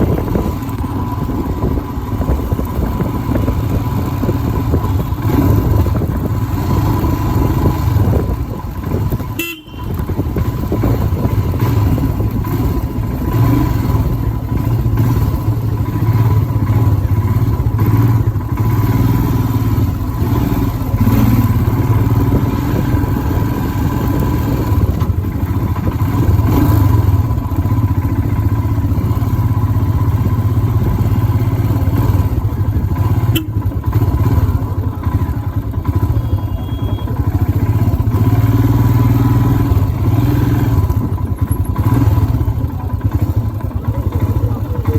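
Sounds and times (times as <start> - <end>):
motorcycle engine running: 0.0 - 44.9
horns honking in traffic: 9.2 - 10.6, 33.0 - 34.4, 35.0 - 37.5.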